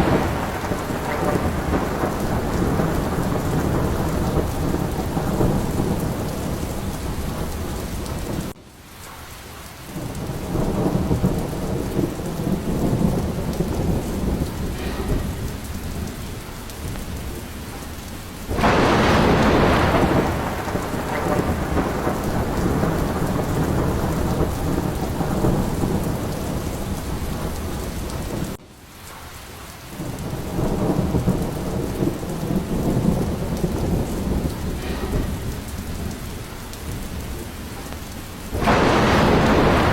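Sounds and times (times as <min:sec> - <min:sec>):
rolling thunder: 0:00.0 - 0:08.6, 0:09.9 - 0:28.6, 0:29.9 - 0:39.9
sharp thunderclap: 0:00.0 - 0:08.6, 0:09.9 - 0:28.6, 0:30.0 - 0:39.9
heavy rain: 0:00.0 - 0:39.9.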